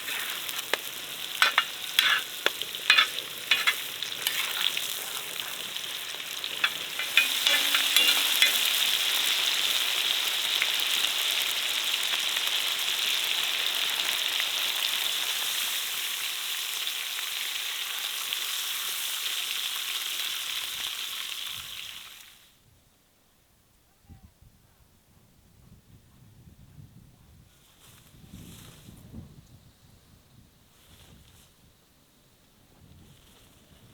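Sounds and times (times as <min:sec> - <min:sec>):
food sizzling in a pan: 0:00.0 - 0:22.4.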